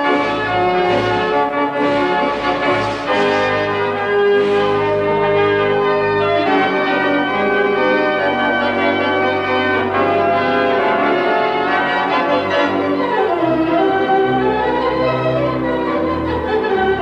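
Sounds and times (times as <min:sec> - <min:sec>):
theatre organ playing chords: 0:00.0 - 0:17.0.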